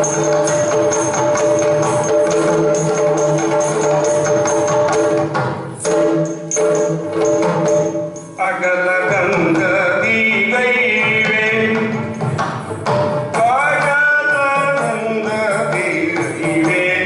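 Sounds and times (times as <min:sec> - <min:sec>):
drums and metal percussion: 0:00.0 - 0:17.0
person singing: 0:13.4 - 0:17.0.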